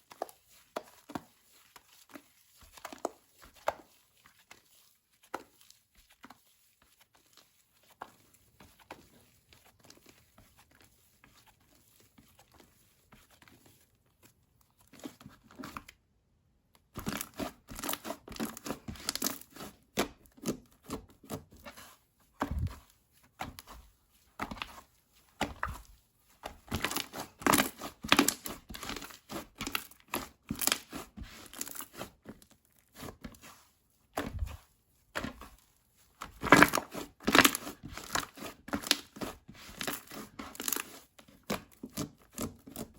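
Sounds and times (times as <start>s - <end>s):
slime crackling and popping: 26.7s - 29.9s, 36.3s - 39.2s.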